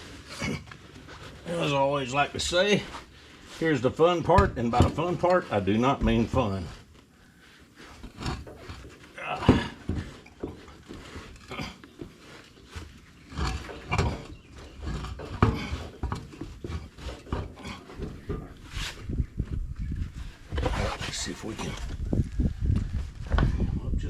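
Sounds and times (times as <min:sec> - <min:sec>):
tire knocking and scraping: 0:00.0 - 0:24.0
man grunting and straining: 0:09.0 - 0:10.2, 0:11.4 - 0:11.8.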